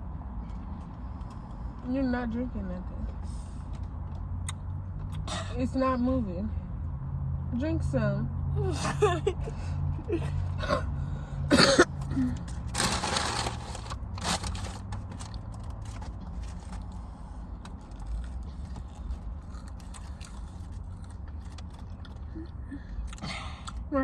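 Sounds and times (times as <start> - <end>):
boy coughing and sputtering: 5.2 - 5.6, 8.6 - 12.4.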